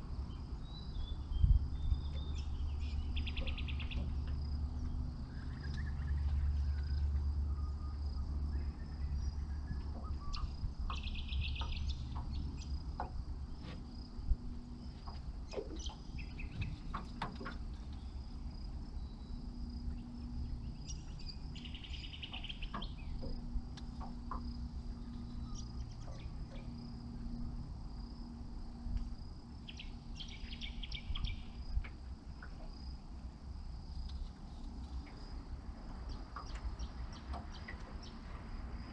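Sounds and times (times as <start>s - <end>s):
insects droning: 0.0s - 38.9s
low rumble: 0.0s - 38.9s
bird chirps: 0.6s - 12.8s, 15.5s - 18.2s, 19.0s - 27.3s, 29.6s - 31.7s.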